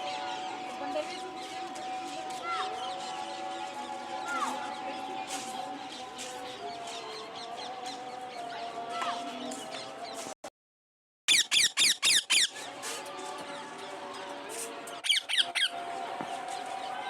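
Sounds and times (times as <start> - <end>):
parrot squeaking: 11.3 - 12.5.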